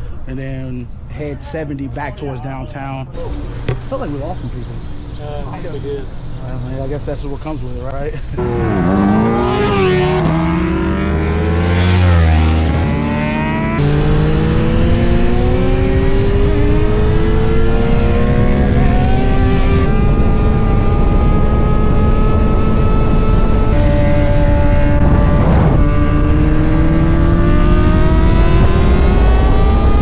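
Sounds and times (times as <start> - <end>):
motorcycle engine accelerating: 8.3 - 30.0.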